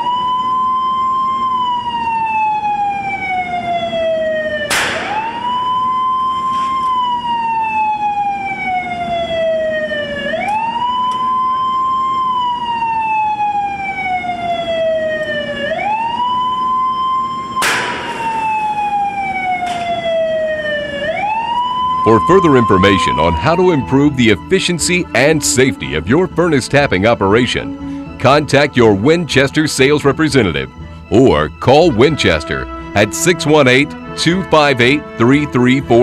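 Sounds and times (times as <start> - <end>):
siren-like warning tone: 0.0 - 36.0
loud sharp gun bangs: 4.7 - 5.6, 17.6 - 18.6.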